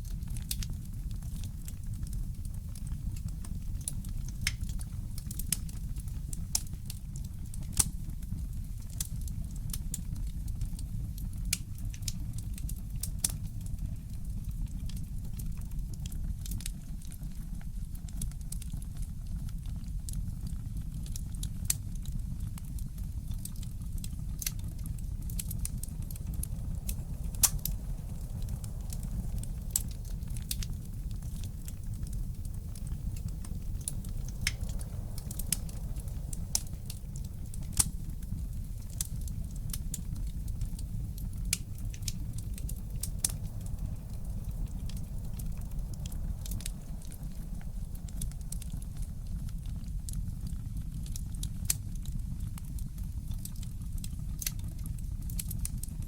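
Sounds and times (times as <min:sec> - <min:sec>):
wood fire crackling: 0:00.0 - 0:17.4, 0:20.7 - 0:56.0.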